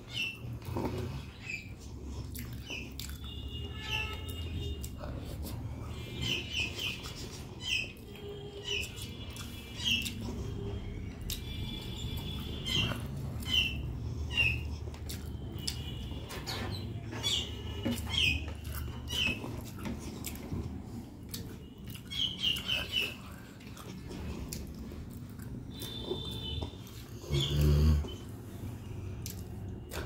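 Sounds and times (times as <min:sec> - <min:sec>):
wet chewing and lip smacking: 0:00.4 - 0:03.6, 0:08.8 - 0:16.1, 0:17.8 - 0:30.0.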